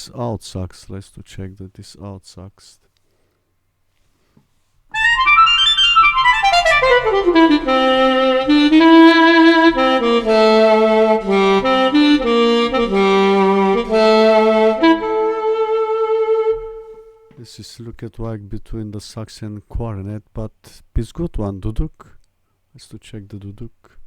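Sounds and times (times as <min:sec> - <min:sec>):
saxophone melody: 0:04.9 - 0:17.3.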